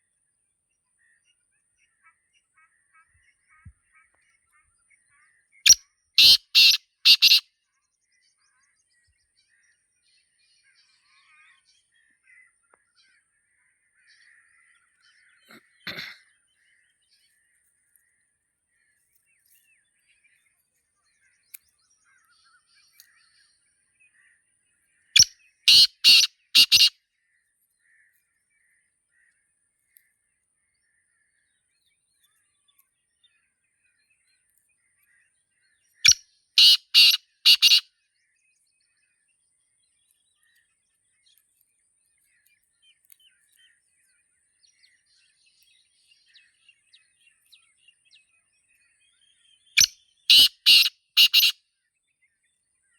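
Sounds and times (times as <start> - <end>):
faint bird chirps: 0.0 - 52.9
francolin harsh clipped calls: 5.7 - 7.4, 25.2 - 26.9, 36.0 - 37.8, 49.8 - 51.6.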